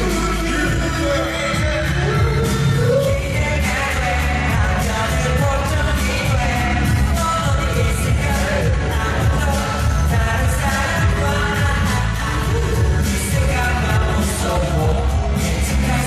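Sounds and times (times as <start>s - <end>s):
male vocal group singing: 0.0s - 16.0s
pop backing track with heavy bass: 0.0s - 16.0s.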